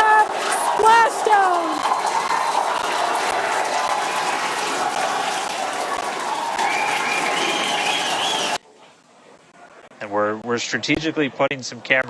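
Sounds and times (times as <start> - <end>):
crowd applauding and cheering: 0.0 - 8.6
whoops: 0.4 - 8.6.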